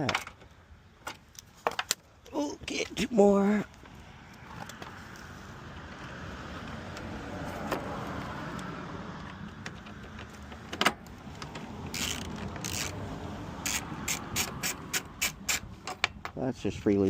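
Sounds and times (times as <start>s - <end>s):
ratchet clicking: 11.5s - 13.0s, 13.6s - 16.0s.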